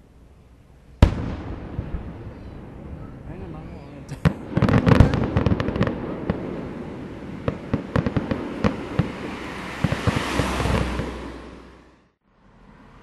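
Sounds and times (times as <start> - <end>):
fireworks popping and banging: 1.0 - 11.6.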